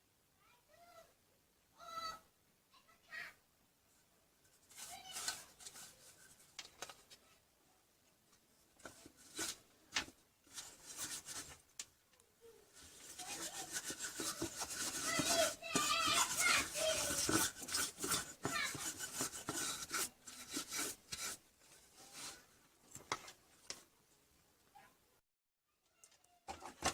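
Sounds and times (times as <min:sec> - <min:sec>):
clicks and knocks of handling: 0:04.6 - 0:07.2, 0:26.0 - 0:26.9.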